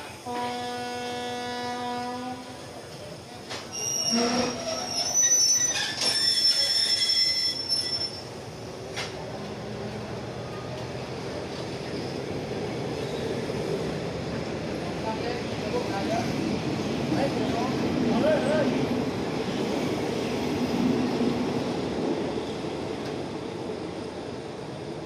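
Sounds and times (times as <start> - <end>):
train coaches rolling past: 0.0 - 25.0
train wheels squealing: 3.7 - 8.4, 11.8 - 12.3, 13.0 - 13.5.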